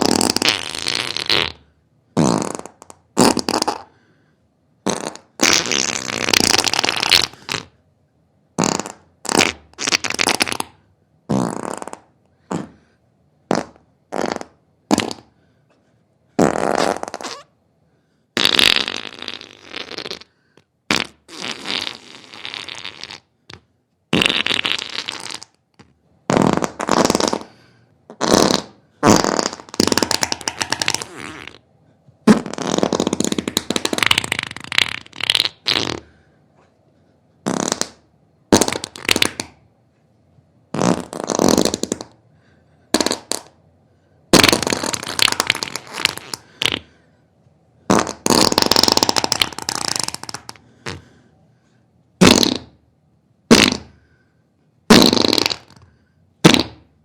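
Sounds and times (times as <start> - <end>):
rasping farts: 0.0 - 4.0, 4.8 - 7.8, 8.6 - 12.9, 13.5 - 15.4, 16.4 - 17.6, 18.4 - 31.6, 32.2 - 36.2, 37.4 - 39.6, 40.7 - 42.2, 42.9 - 43.6, 44.3 - 47.0, 47.9 - 51.2, 52.2 - 52.8, 53.5 - 54.1, 54.9 - 56.9.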